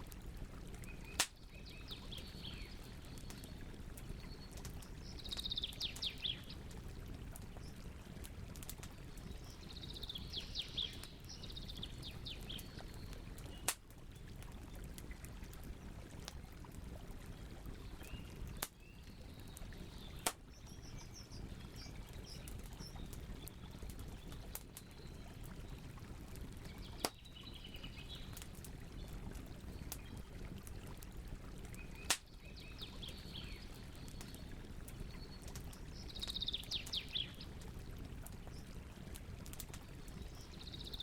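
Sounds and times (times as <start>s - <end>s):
campfire burning: 0.0s - 41.0s
songbird singing: 0.9s - 6.6s, 9.2s - 13.7s, 18.0s - 23.5s, 26.7s - 28.3s, 31.8s - 34.5s, 36.0s - 37.5s
fire popping: 17.5s - 27.2s, 28.1s - 32.5s.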